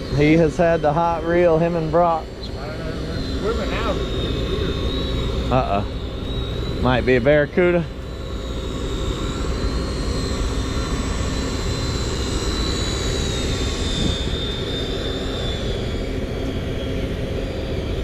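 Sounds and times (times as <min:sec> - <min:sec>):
boat engines running: 0:00.0 - 0:18.0
faint thin whine: 0:00.0 - 0:18.0.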